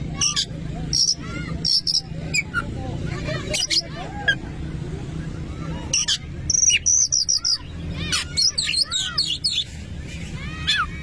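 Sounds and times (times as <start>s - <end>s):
bird song of whistles and chirps: 5.9s - 9.7s.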